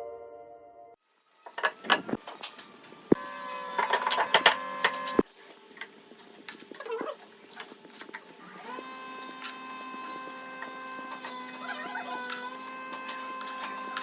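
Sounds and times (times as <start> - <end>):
power tool motor whining: 1.2 - 5.3, 8.4 - 14.0.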